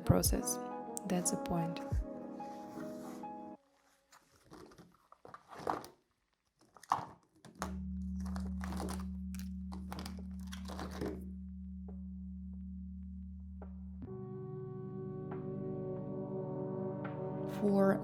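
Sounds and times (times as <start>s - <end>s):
paper crinkling: 2.6s - 11.2s
ambient music drone: 7.8s - 18.0s.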